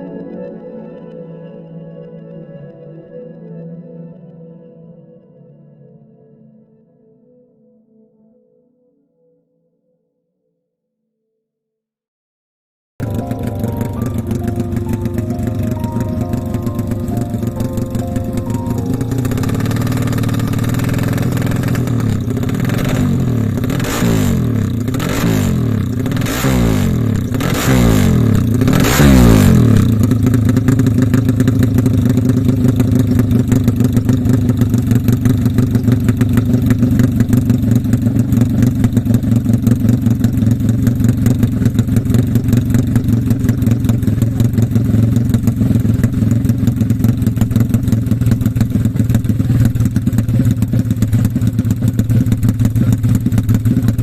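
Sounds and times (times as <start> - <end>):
motorcycle engine revving and idling: 13.0 - 54.0.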